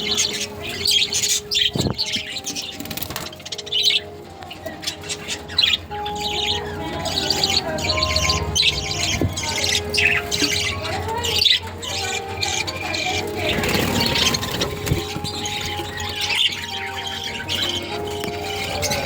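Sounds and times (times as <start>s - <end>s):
background music: 0.0s - 19.0s
budgerigars chirping: 0.0s - 19.0s.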